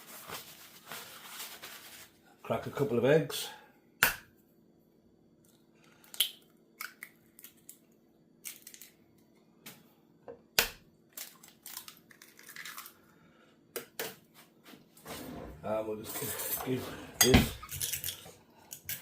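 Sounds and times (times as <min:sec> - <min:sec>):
eggshells cracking: 0:06.0 - 0:09.0, 0:11.1 - 0:13.0.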